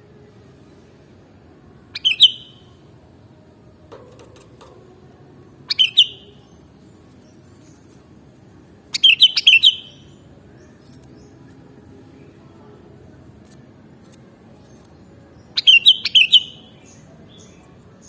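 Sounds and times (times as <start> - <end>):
bird singing quick notes: 2.0 - 2.6, 5.7 - 6.4, 8.9 - 10.0, 15.6 - 17.0.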